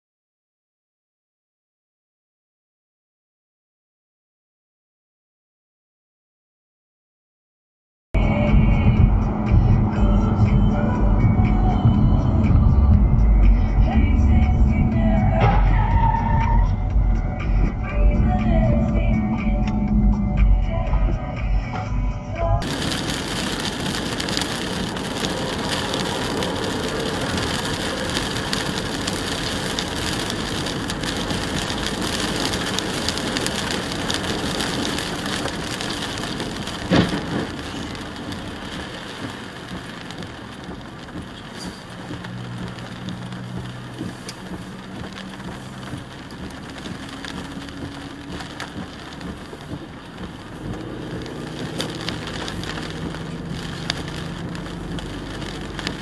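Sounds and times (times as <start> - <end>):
low hum: 8.2 - 23.7
rain and tyres on wet road: 8.2 - 56.0.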